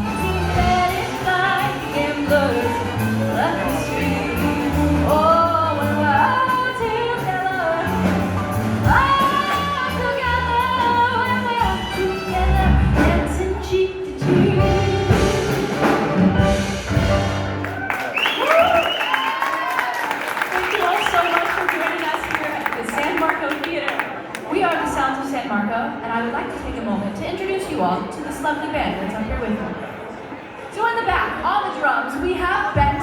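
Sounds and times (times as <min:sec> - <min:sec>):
small jazz band playing: 0:00.0 - 0:19.1.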